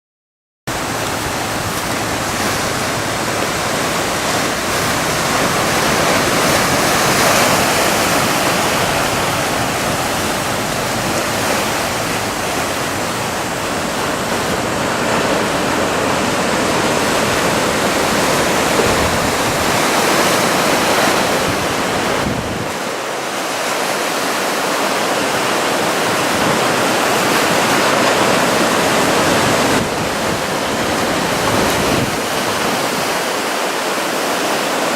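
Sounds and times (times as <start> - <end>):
ocean waves breaking: 0.7 - 34.9.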